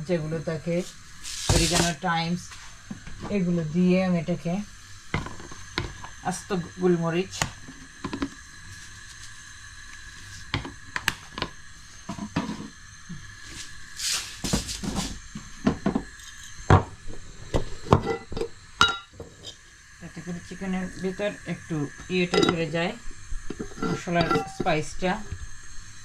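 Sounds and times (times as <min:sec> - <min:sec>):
pot and spoon clinking: 0:17.9 - 0:19.1, 0:22.3 - 0:22.7, 0:23.5 - 0:24.8.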